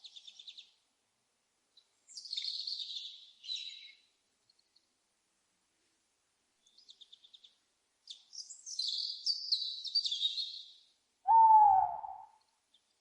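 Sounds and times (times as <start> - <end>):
small birds twittering: 0.0 - 0.8, 1.8 - 4.8, 6.6 - 13.0
lower bird call: 11.3 - 12.5.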